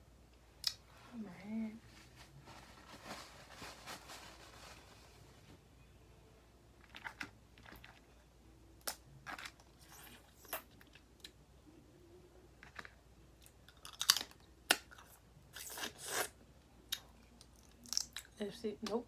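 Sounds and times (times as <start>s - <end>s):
crawfish shells cracking: 12.6s - 15.1s, 17.4s - 18.3s.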